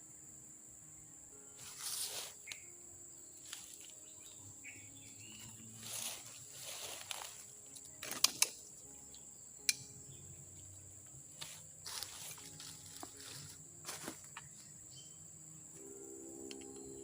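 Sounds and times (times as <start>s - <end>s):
high-pitched insect drone: 0.0s - 17.0s
sharp clicks: 9.6s - 9.9s.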